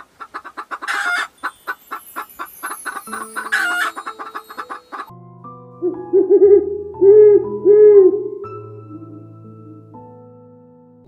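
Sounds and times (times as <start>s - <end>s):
hen calling: 0.0s - 5.1s
hen clucking: 0.0s - 5.1s.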